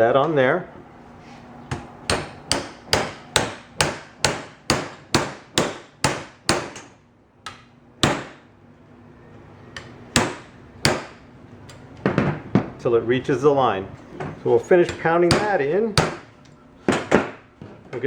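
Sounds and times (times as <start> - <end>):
hammer striking metal tubing: 2.1 - 6.9.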